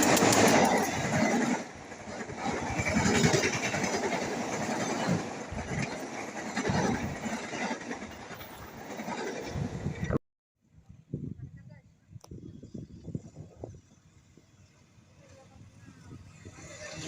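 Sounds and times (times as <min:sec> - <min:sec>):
train wheels clattering on rails: 0:00.0 - 0:10.2.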